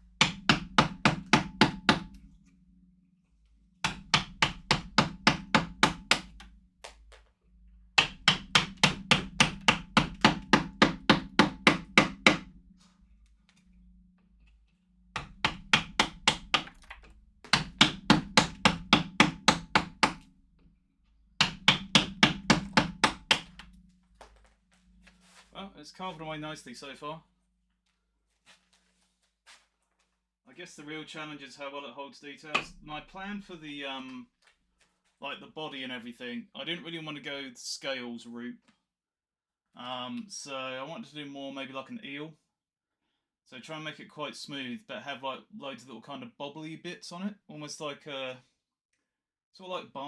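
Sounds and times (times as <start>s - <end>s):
mallet striking chisel into wood: 0.1s - 2.3s, 3.8s - 7.2s, 8.0s - 12.6s, 15.2s - 20.3s, 21.4s - 23.8s, 32.6s - 33.0s.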